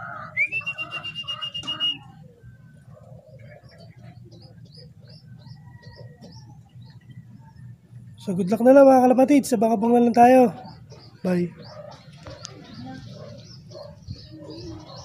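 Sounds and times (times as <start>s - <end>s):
small birds chirping: 0.0s - 15.0s
loud high whistle-like call: 0.4s - 2.1s.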